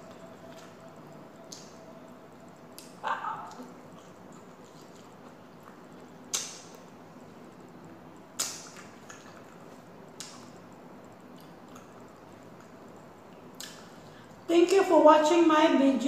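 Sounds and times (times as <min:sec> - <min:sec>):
steady low hiss: 0:00.0 - 0:16.0
crisp eating sounds: 0:02.5 - 0:14.4.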